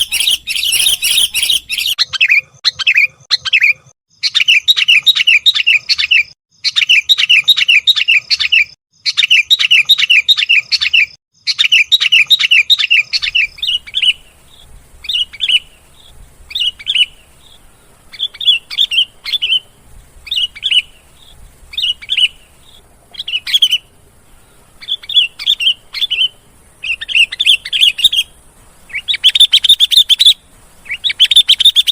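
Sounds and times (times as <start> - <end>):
birds chattering calls: 0.0 - 31.9.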